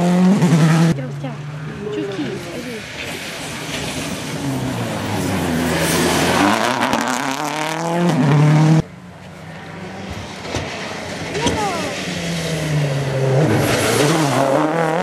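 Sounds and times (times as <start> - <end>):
rally car engine at full throttle: 0.0 - 15.0.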